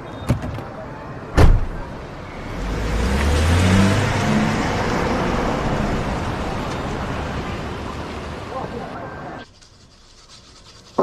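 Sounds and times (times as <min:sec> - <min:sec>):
sharp thump: 0:01.4 - 0:01.8
car engine driving past: 0:02.0 - 0:08.6.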